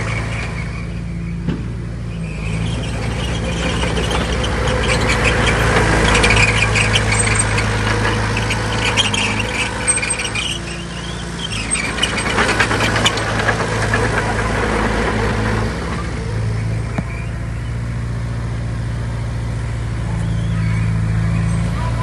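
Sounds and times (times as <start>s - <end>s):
heavy machinery diesel engine: 0.0s - 22.0s
metallic clanking and rattling: 2.7s - 16.0s.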